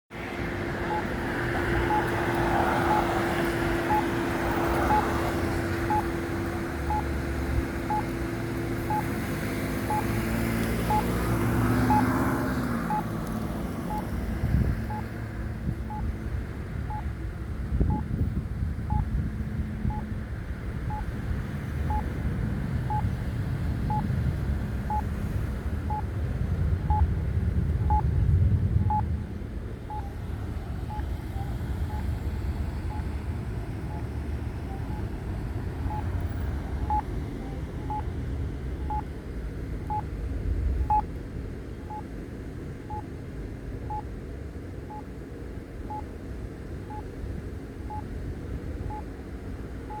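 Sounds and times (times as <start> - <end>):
passing traffic rumble: 0.1 - 50.0
short high beeps: 0.9 - 1.1, 1.9 - 2.1, 2.9 - 3.1, 3.9 - 4.1, 5.9 - 6.1, 6.9 - 7.1, 7.9 - 8.1, 8.9 - 9.1, 11.9 - 12.1, 29.9 - 30.1, 30.9 - 32.1, 34.7 - 35.1, 36.8 - 37.0, 38.8 - 39.0, 40.8 - 41.0.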